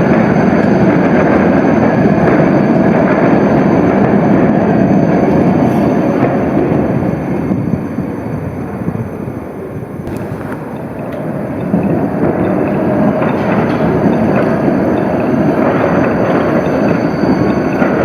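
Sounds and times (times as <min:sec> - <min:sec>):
tram rolling rumble: 0:00.0 - 0:18.0.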